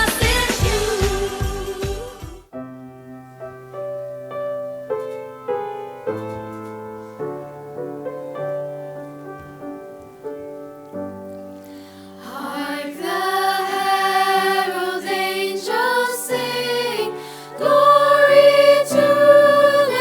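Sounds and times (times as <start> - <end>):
slow solo piano chords: 2.6 - 13.0.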